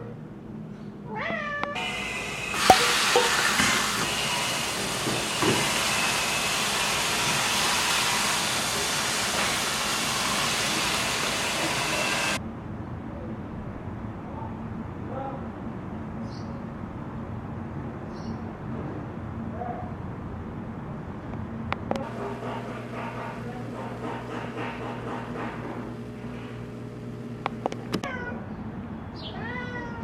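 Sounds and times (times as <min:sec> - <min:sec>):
cat meowing: 0:01.1 - 0:01.8, 0:28.0 - 0:28.5, 0:29.3 - 0:30.0.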